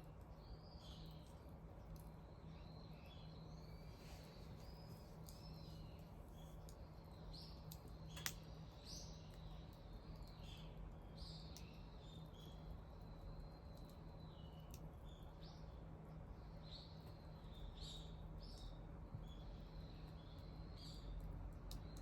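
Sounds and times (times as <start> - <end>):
low steady hum: 0.0 - 22.0
small birds chirping: 0.0 - 22.0
bonfire crackling and popping: 7.6 - 8.6.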